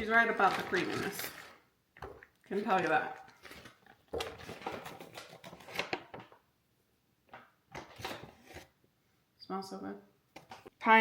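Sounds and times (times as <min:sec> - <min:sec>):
kitchen utensils clicking and scraping: 0:00.3 - 0:01.6.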